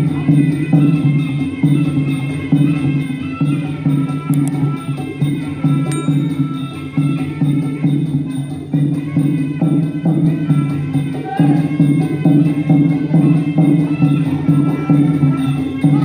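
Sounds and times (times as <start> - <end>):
drums and percussion rhythm: 0.0 - 16.0
held pitched melody: 5.9 - 7.8.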